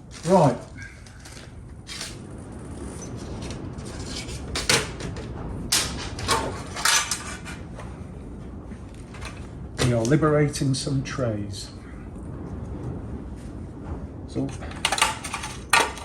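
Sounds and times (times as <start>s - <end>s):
objects knocking and clunking: 3.4s - 7.9s, 14.5s - 16.0s.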